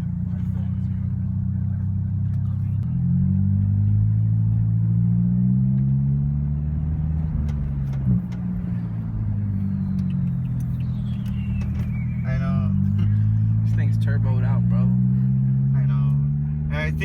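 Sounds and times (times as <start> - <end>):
car engine running: 0.0 - 17.0
faint high whistle: 10.7 - 12.3.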